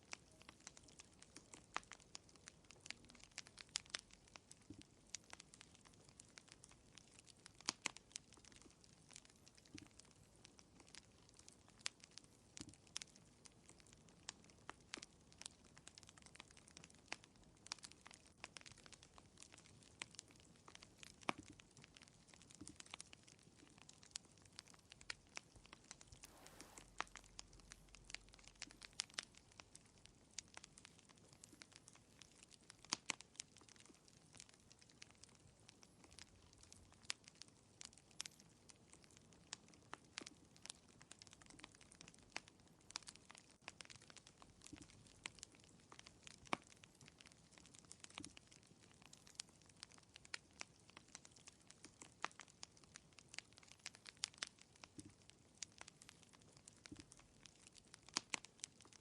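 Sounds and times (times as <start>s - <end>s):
wood fire crackling: 0.0s - 59.0s
faint hiss: 25.4s - 30.6s.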